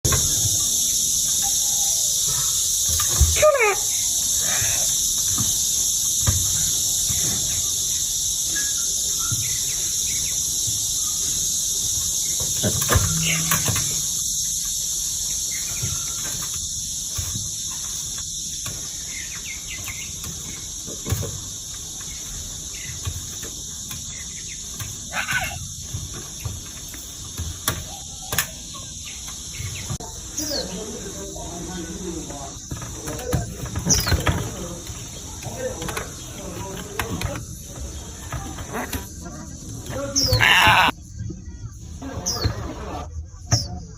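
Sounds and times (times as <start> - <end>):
high-pitched insect drone: 0.1 - 32.7, 40.0 - 41.0.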